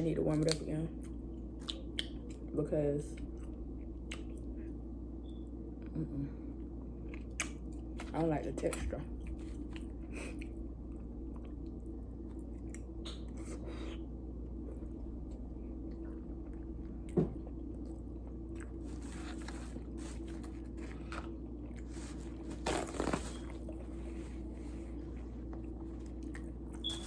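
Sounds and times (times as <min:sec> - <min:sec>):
steady low hum: 0:00.0 - 0:27.0
person chewing and biting: 0:07.0 - 0:08.1.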